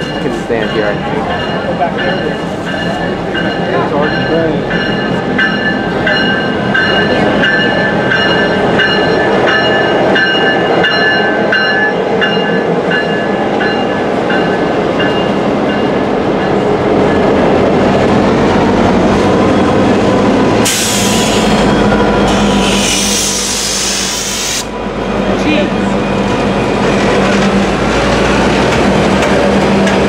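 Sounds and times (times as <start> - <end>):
locomotive bell ringing: 0.0 - 17.6
engine and wheel rumble: 24.9 - 30.0.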